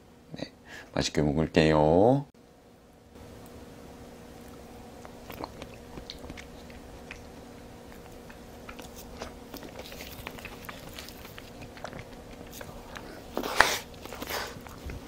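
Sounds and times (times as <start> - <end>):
faint steady hum: 0.0 - 15.0
wet chewing smacks: 4.4 - 15.0.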